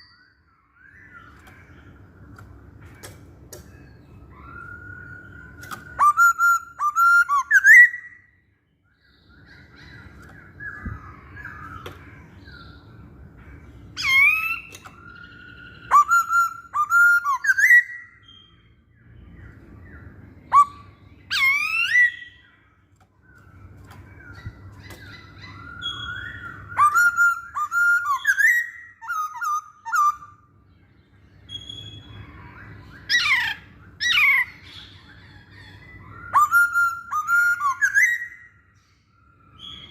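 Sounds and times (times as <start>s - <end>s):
bird singing whistled phrases: 4.3s - 8.3s, 14.0s - 18.6s, 20.5s - 22.6s, 24.3s - 30.4s, 31.4s - 35.0s, 35.6s - 38.8s, 39.4s - 39.9s.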